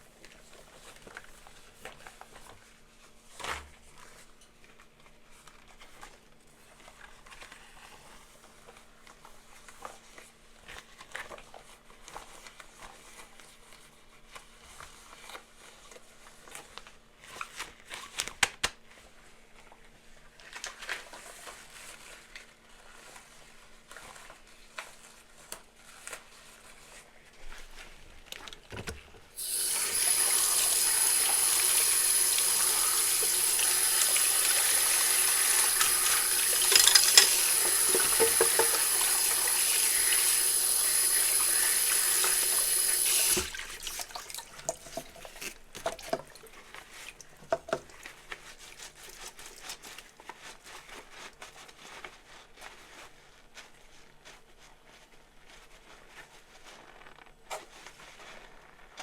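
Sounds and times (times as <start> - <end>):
tap water running into sink: 29.4 - 46.4
dishes clinking: 35.8 - 39.1.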